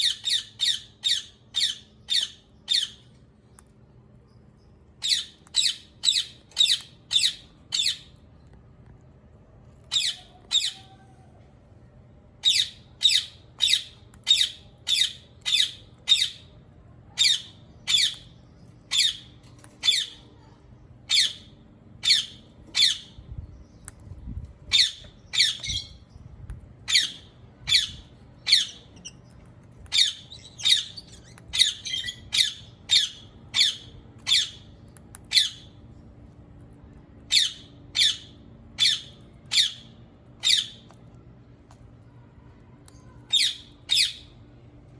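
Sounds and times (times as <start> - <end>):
parakeet harsh high calls: 0.0 - 3.0, 12.4 - 16.5, 21.1 - 23.2, 29.9 - 34.6, 37.3 - 40.8, 43.3 - 44.3.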